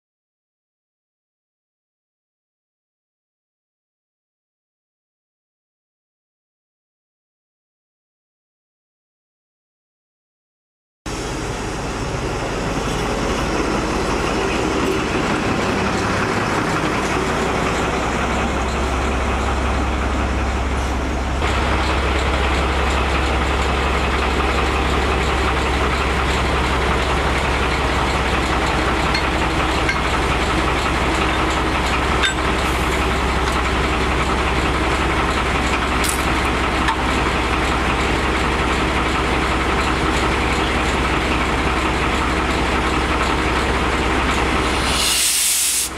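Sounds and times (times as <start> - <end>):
locomotive engine drone: 11.1 - 45.9
train noise: 11.1 - 45.9.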